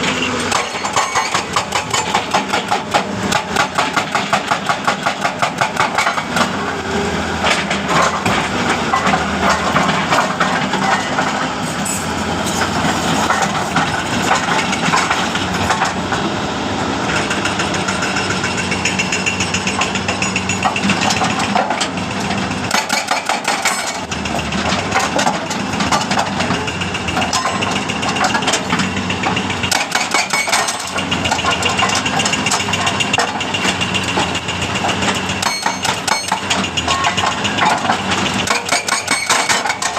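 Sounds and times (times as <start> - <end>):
engine running: 0.0 - 39.9
jackhammer pounding rock: 0.5 - 7.0, 17.0 - 22.0, 22.7 - 39.9.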